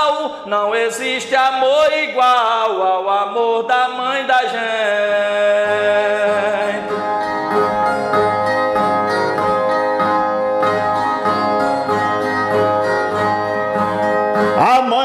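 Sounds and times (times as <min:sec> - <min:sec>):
person singing: 0:00.0 - 0:07.8, 0:14.4 - 0:15.0
plucked folk guitar: 0:05.2 - 0:15.0.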